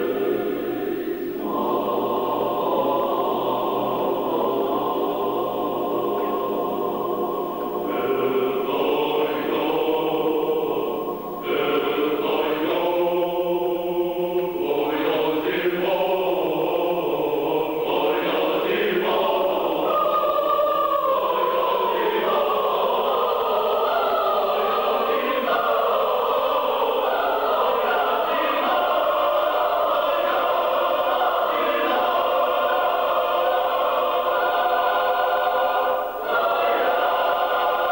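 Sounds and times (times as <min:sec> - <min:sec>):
choir singing sustained chords: 0:00.0 - 0:37.9.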